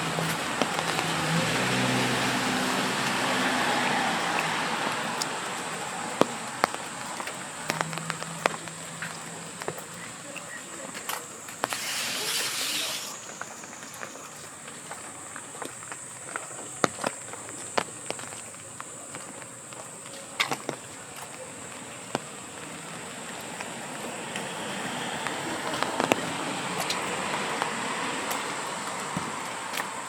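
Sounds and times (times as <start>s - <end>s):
rain hiss: 0.0s - 15.4s, 21.0s - 30.0s
sharp drip taps: 3.0s - 10.6s
thin high whine: 11.5s - 14.2s.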